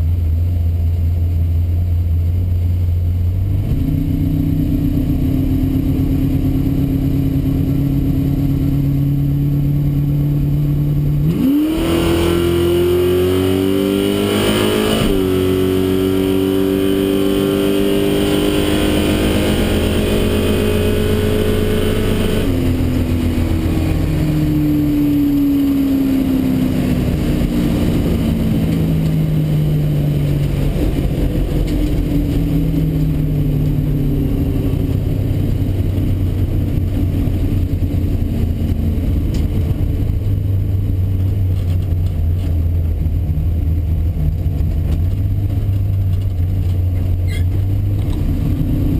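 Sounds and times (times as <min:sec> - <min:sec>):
car engine rumbling from inside cabin: 0:00.0 - 0:48.9.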